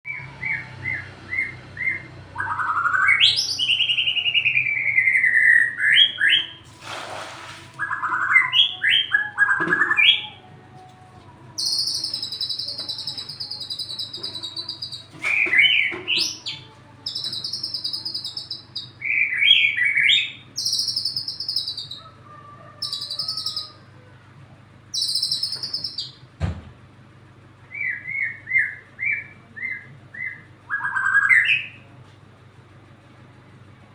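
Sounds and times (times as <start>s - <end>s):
songbird singing whistled phrases: 0.1s - 6.6s, 7.8s - 10.4s, 11.6s - 22.1s, 22.8s - 23.8s, 24.9s - 26.2s, 27.7s - 31.8s.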